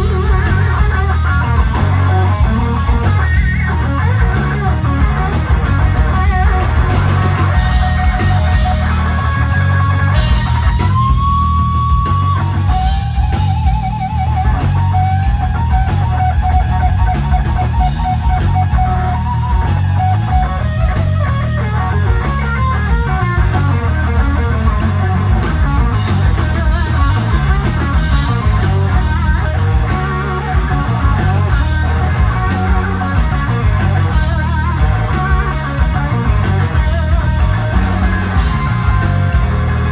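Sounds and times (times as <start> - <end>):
electric guitar band music: 0.0 - 39.9.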